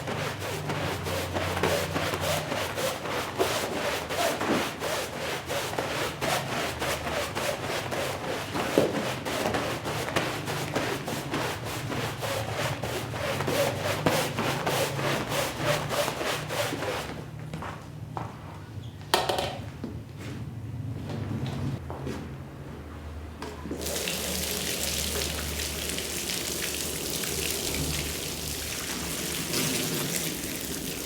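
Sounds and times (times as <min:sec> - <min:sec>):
brush scrubbing wet rug: 0:00.0 - 0:17.2, 0:23.8 - 0:31.0.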